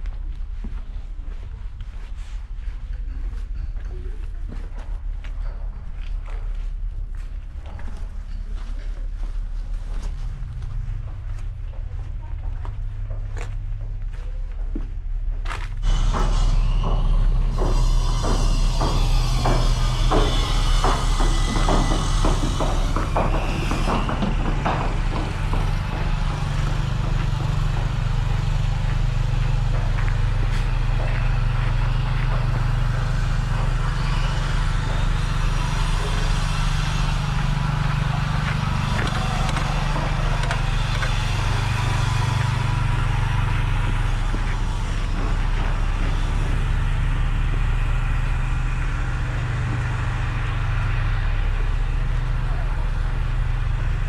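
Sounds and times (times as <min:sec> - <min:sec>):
street noise: 0:00.0 - 0:54.0
vehicle engine humming: 0:00.0 - 0:54.0.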